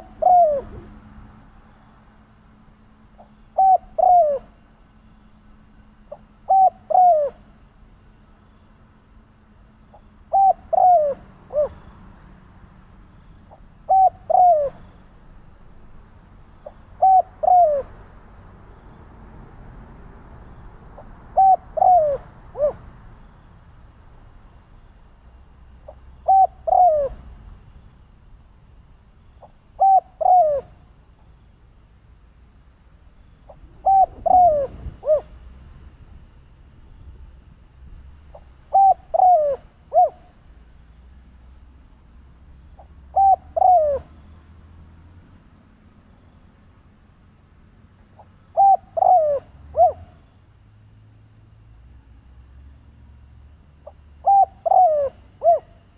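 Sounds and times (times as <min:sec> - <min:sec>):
dove cooing: 0:00.0 - 0:01.0, 0:03.2 - 0:04.6, 0:06.1 - 0:07.5, 0:09.9 - 0:11.8, 0:13.5 - 0:14.9, 0:16.6 - 0:18.0, 0:21.0 - 0:22.8, 0:25.9 - 0:27.3, 0:29.4 - 0:30.8, 0:33.5 - 0:35.4, 0:38.3 - 0:40.3, 0:42.8 - 0:44.1, 0:48.2 - 0:50.2, 0:53.8 - 0:55.8.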